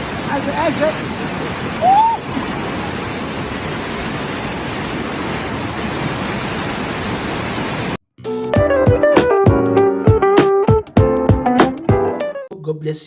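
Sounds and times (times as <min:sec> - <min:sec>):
waterfall rushing over rock: 0:00.0 - 0:08.0
plucked guitar music: 0:08.2 - 0:12.7.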